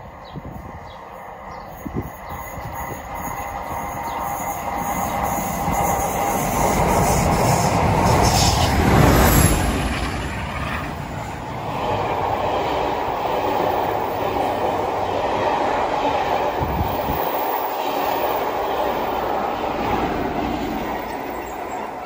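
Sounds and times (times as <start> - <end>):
train wheels rumbling on rails: 0.0 - 22.0
clickety-clack over rail joints: 2.9 - 22.0.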